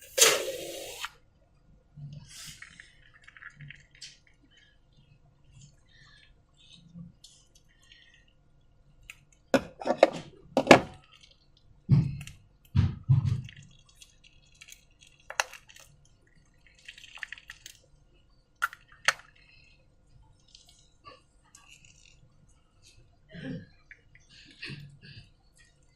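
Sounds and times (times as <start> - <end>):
slime squelching: 10.9 - 24.4.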